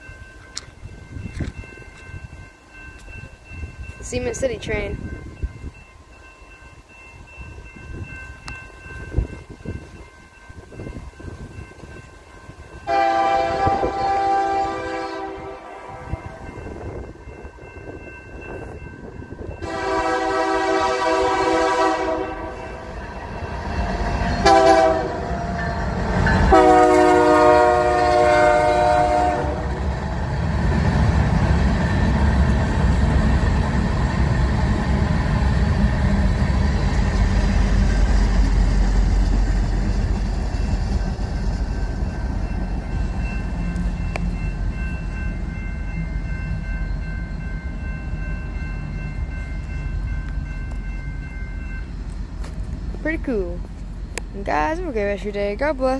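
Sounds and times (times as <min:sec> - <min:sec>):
train horn blasts: 0:12.8 - 0:16.5, 0:19.6 - 0:22.9, 0:24.4 - 0:25.4, 0:26.4 - 0:29.8.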